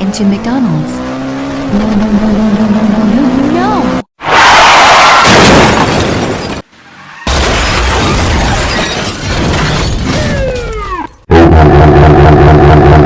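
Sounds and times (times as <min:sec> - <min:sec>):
car crash smash: 0:04.3 - 0:11.1
glass breaking: 0:05.2 - 0:06.7, 0:07.3 - 0:11.2.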